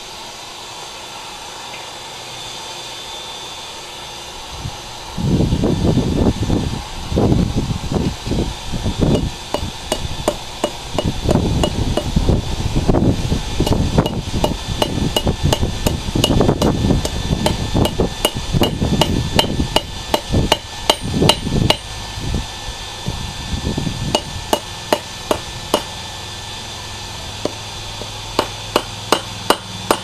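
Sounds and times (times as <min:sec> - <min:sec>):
hammer striking metal on anvil: 0:09.1 - 0:12.1, 0:13.6 - 0:21.9, 0:24.2 - 0:26.0, 0:27.4 - 0:30.0.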